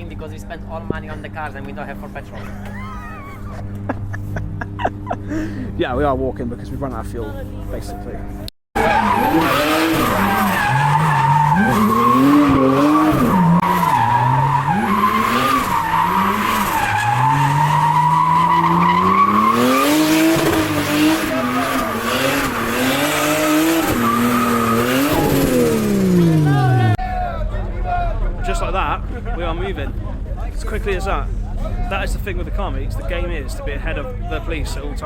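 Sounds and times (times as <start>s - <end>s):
car engine revving: 8.2s - 27.0s
tyres squealing: 8.8s - 27.0s.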